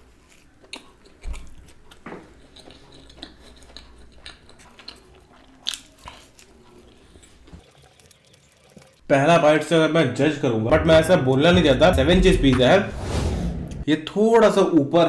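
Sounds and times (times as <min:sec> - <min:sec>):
man chewing food: 0:00.0 - 0:08.0.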